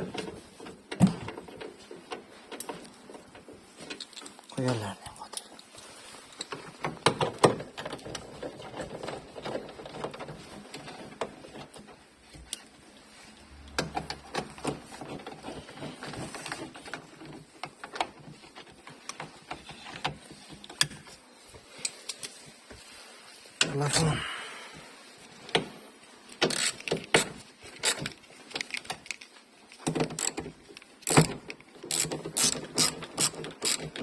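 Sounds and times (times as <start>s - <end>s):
tools and parts clicking: 3.9s - 4.5s, 26.3s - 34.0s.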